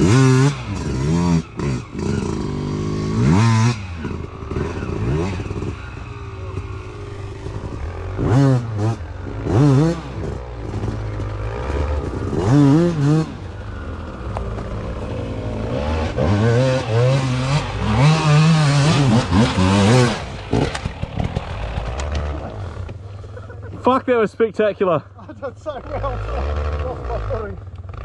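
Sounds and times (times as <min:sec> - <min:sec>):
dirt bike engine revving: 0:00.0 - 0:24.0, 0:25.2 - 0:28.0
clatter: 0:10.2 - 0:12.9, 0:16.3 - 0:23.0.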